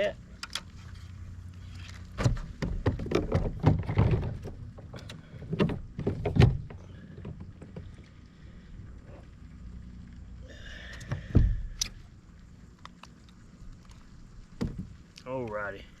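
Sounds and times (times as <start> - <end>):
hollow knocks on a kayak: 2.2 - 8.0, 14.6 - 14.9.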